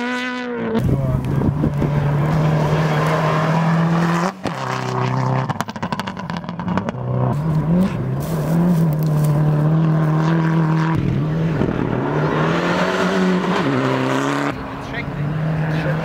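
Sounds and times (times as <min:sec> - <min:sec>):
rally car engine revving: 0:00.0 - 0:16.0
exhaust pops and crackles: 0:00.7 - 0:03.2, 0:04.3 - 0:10.0.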